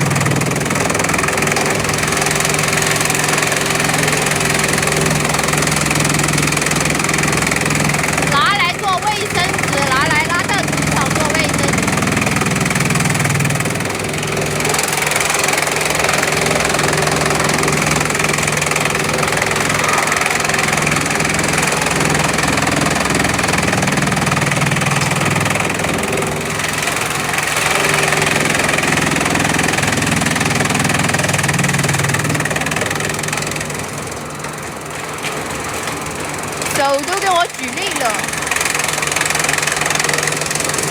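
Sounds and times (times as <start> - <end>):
chipping machine droning: 0.0 - 40.9.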